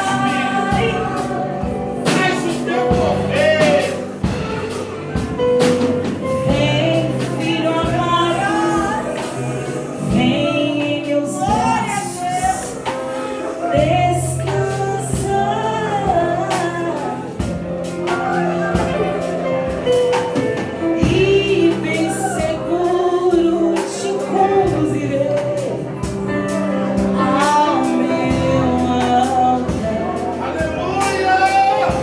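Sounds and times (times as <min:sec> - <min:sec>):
person singing: 0:00.0 - 0:05.3, 0:06.3 - 0:32.0
percussion beat: 0:00.0 - 0:10.4, 0:17.4 - 0:24.0, 0:25.6 - 0:32.0
band accompaniment: 0:00.0 - 0:32.0.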